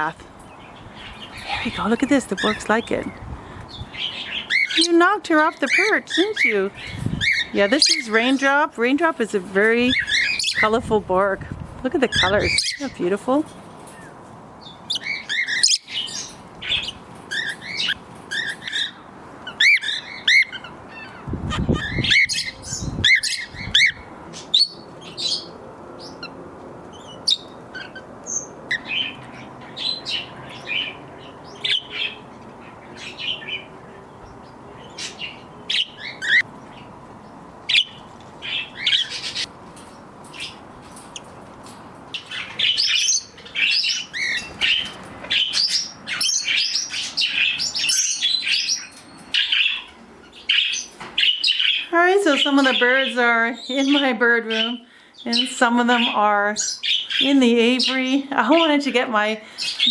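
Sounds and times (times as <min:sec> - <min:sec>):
parrots chirping and chattering: 0:00.0 - 0:59.9
wind rumble on microphone: 0:00.8 - 0:04.1, 0:06.7 - 0:07.6, 0:09.5 - 0:13.1, 0:21.2 - 0:24.3.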